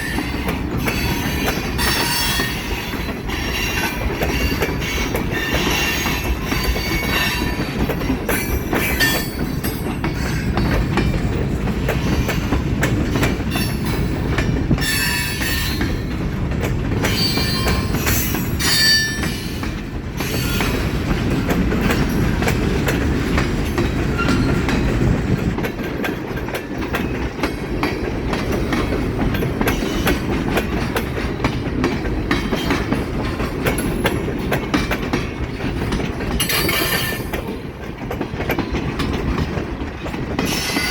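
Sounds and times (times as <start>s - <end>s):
steel wheels squealing: 0.0s - 10.8s, 17.0s - 19.6s, 40.4s - 40.9s
wheels clacking over rail joints: 0.0s - 40.9s.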